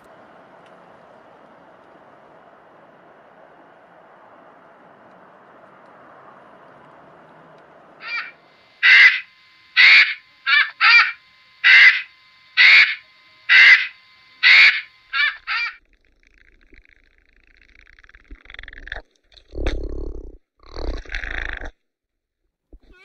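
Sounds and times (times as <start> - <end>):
bird cawing harshly: 8.0 - 15.8.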